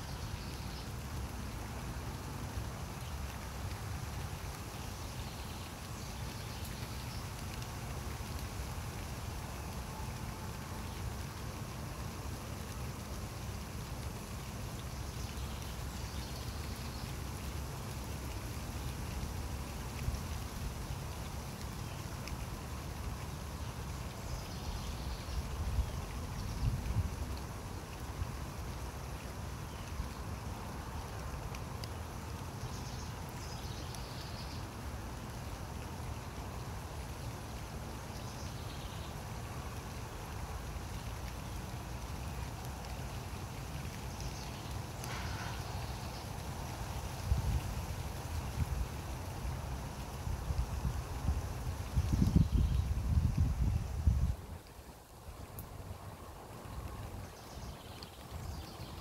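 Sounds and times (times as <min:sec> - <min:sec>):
rain falling: 0:00.0 - 0:59.0
wind buffeting microphone: 0:50.3 - 0:54.6.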